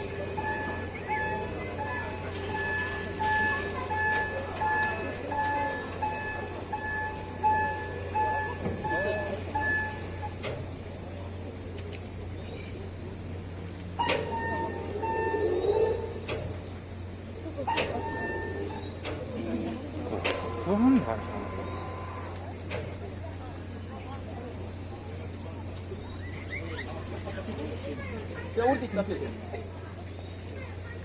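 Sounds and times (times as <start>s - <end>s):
electronic bell chiming: 0.4s - 10.1s, 14.0s - 15.6s, 17.9s - 18.8s.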